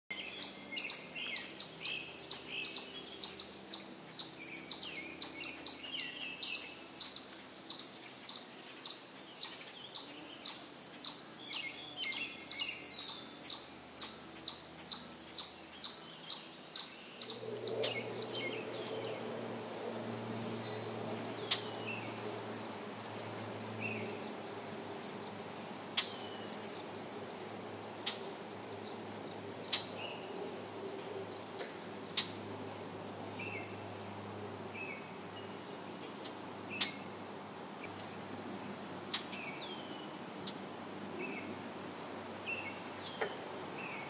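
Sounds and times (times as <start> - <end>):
other birds calling: 0.1 - 32.8
steady low hum: 0.1 - 44.0.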